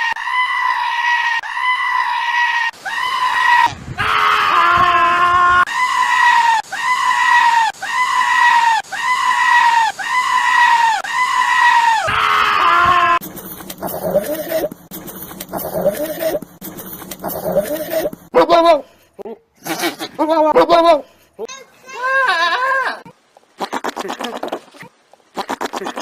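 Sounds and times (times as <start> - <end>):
goat screaming: 0.0 - 13.2, 19.6 - 21.0, 22.0 - 23.0, 25.4 - 26.0
goat bleating: 13.8 - 14.8, 15.5 - 16.4, 17.2 - 18.8, 19.6 - 21.0, 22.0 - 26.0.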